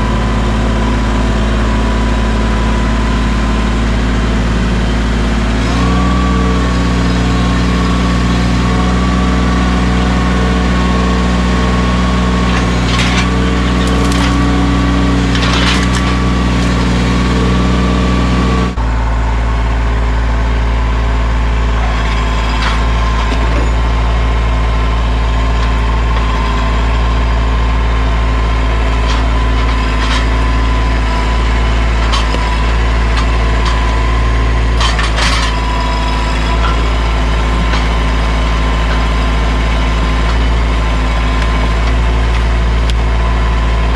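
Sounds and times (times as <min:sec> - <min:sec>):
tractor diesel engine running: 0:00.0 - 0:43.9
knocks and clatters: 0:10.8 - 0:17.6, 0:21.8 - 0:24.1, 0:28.8 - 0:43.0.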